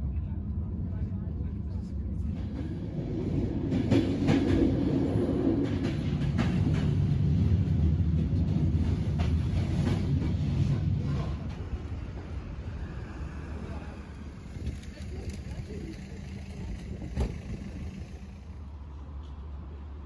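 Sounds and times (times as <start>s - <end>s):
train low rumble: 0.0s - 20.0s
wheels clacking over rail joints: 2.5s - 12.5s, 14.4s - 18.6s.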